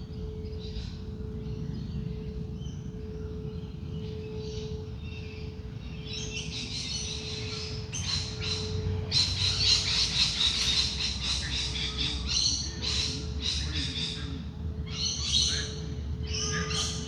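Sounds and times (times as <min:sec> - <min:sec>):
singing bowl hum: 0:00.0 - 0:17.0
birds chirping and calling: 0:03.6 - 0:17.0.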